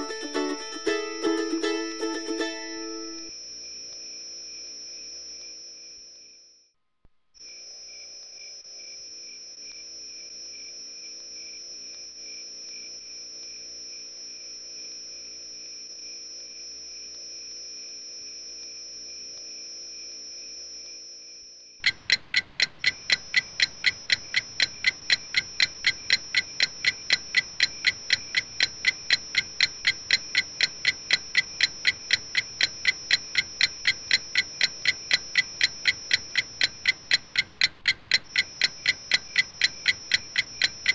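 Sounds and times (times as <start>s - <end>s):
crickets chirring: 7.4s - 40.9s
rapid clock-like ticking: 21.8s - 40.9s.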